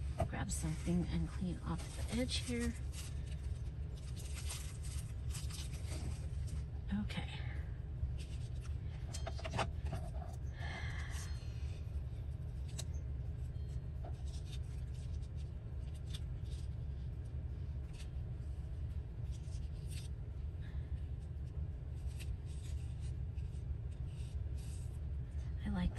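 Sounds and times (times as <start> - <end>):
low hum: 0.0 - 25.9
paper rustling and scraping: 0.6 - 6.7, 8.2 - 10.4, 14.0 - 17.1, 19.2 - 20.1, 22.0 - 25.0.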